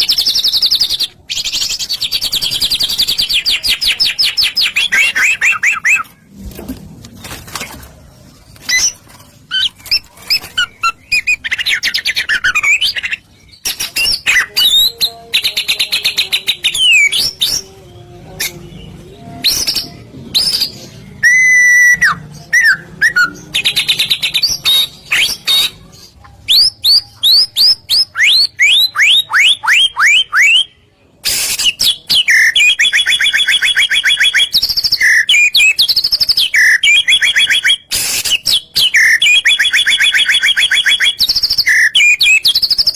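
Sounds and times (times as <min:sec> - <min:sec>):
bird singing whistled phrases: 0:19.4 - 0:25.8, 0:31.3 - 0:42.9.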